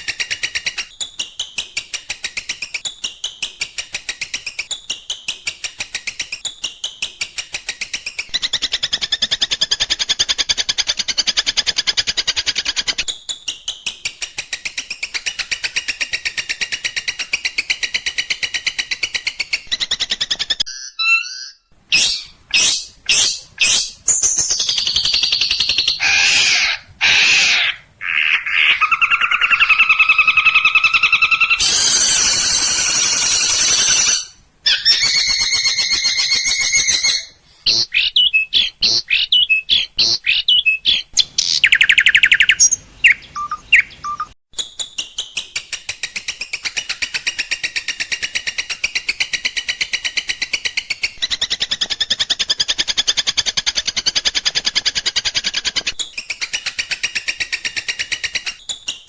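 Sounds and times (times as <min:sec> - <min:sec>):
shrike singing varied song: 0:20.7 - 0:44.3.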